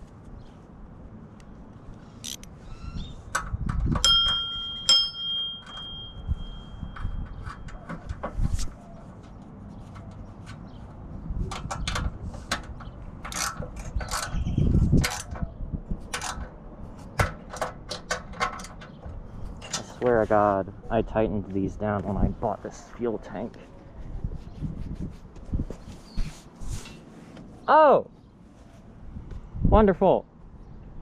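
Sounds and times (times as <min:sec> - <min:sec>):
ringing metallic ding: 0:04.0 - 0:07.2
metal tools clicking and clinking: 0:13.2 - 0:14.4, 0:16.1 - 0:16.5.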